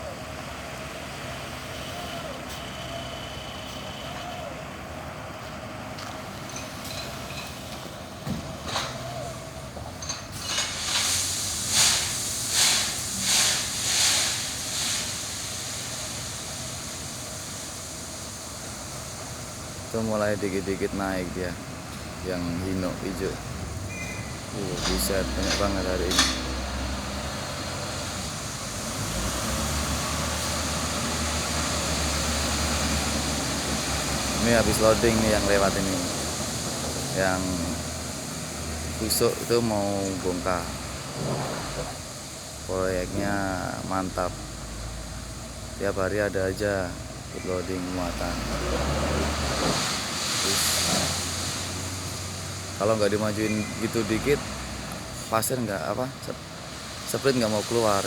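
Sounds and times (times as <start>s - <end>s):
truck engines running: 0.0s - 58.0s
compressed-air hisses: 10.4s - 21.0s, 46.8s - 55.4s, 56.6s - 58.0s.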